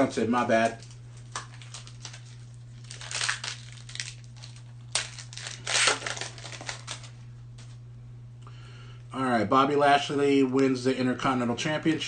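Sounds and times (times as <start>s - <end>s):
steady low hum: 0.0s - 12.0s
cards rustling: 0.6s - 7.2s
wrapper crinkling and tearing: 0.6s - 7.2s.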